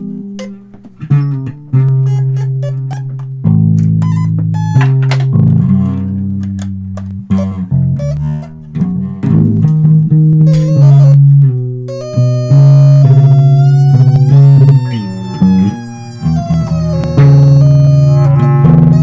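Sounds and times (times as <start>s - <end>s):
guitar notes: 0.0s - 19.0s
plucked electric bass: 0.0s - 19.0s
long held tone: 11.9s - 19.0s.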